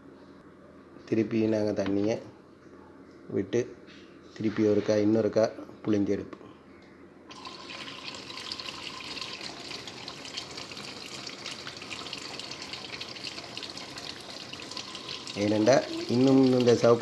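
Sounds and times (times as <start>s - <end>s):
tap water pouring into tub: 7.3s - 17.0s.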